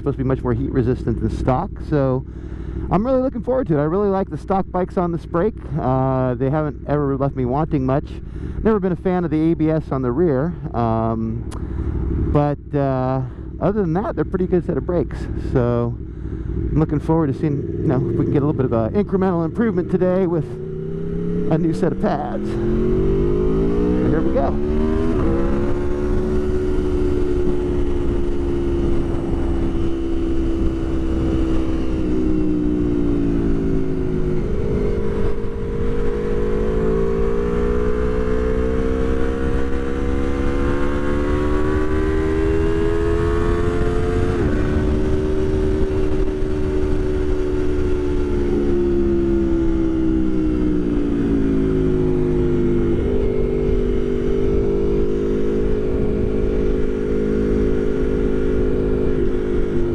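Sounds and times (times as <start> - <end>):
motorcycle engine revving: 0.0 - 59.9
wind noise: 15.0 - 59.9.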